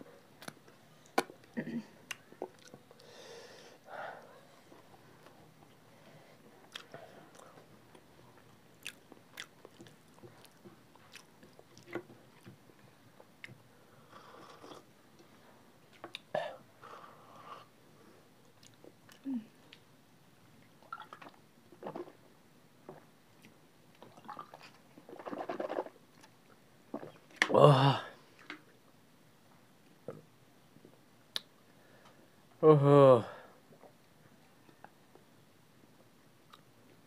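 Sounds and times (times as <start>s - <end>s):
chewing and lip smacks: 0.4s - 2.8s, 6.6s - 12.5s.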